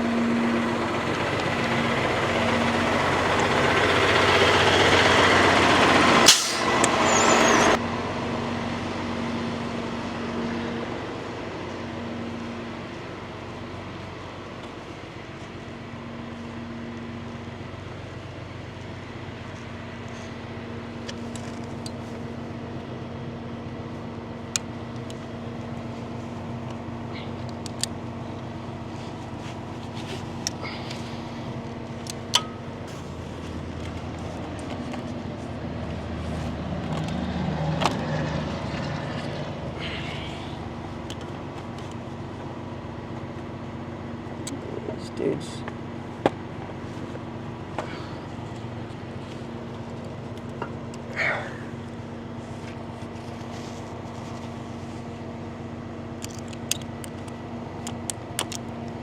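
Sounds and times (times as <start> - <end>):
passing vehicle: 0.0 - 13.9, 28.3 - 43.5
tow truck engine idling: 0.0 - 59.0.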